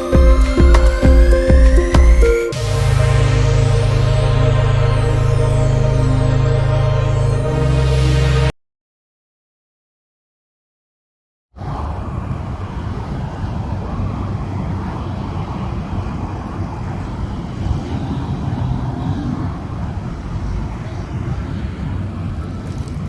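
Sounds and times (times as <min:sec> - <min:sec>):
low rumble of road traffic: 0:11.6 - 0:23.0.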